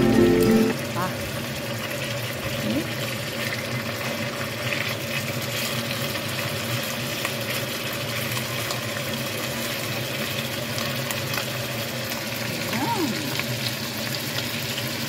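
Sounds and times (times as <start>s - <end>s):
low steady hum: 0.0s - 1.1s
chicken wings sizzling in a pan: 0.0s - 15.0s.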